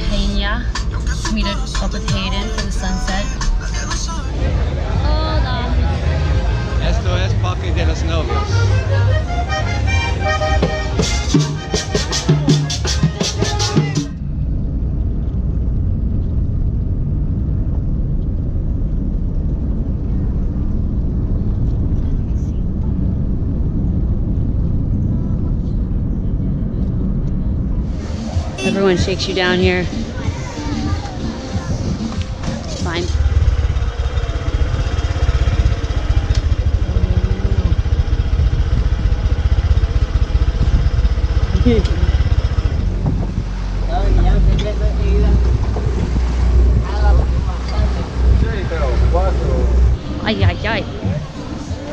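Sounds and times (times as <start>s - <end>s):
vehicle rumble: 0.0s - 51.9s
music with accordion and drums: 8.2s - 14.2s, 28.3s - 33.1s
motorbike engine running: 28.3s - 51.9s.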